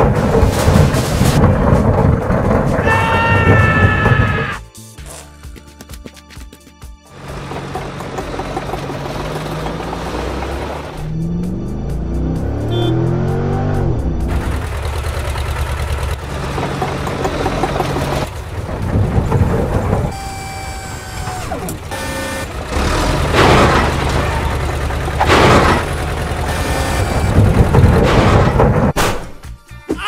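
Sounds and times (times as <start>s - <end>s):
background music: 2.8s - 14.7s, 29.0s - 30.0s
cartoon vehicle engine running: 7.1s - 28.8s
loud crashing bursts: 14.3s - 29.0s.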